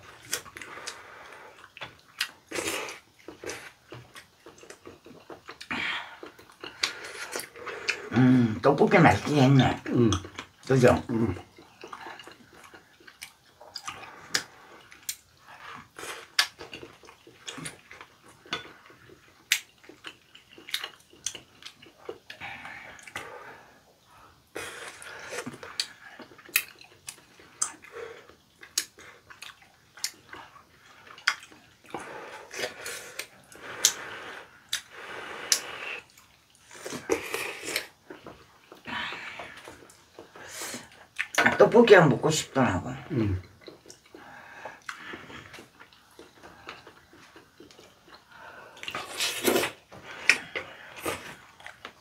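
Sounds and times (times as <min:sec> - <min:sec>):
people chewing wetly: 0:00.0 - 0:41.6, 0:42.9 - 0:52.0.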